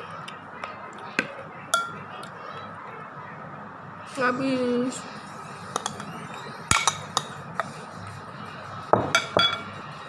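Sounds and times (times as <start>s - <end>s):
dishes and cutlery clinking: 1.2s - 2.3s, 5.7s - 7.8s, 8.9s - 9.8s.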